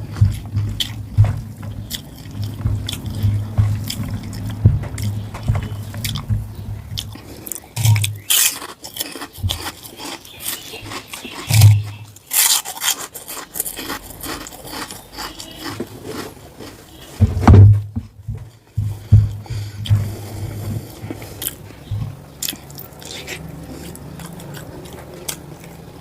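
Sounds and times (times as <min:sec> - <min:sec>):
soft low thumps: 0:00.0 - 0:08.2, 0:17.2 - 0:21.2, 0:21.8 - 0:22.3.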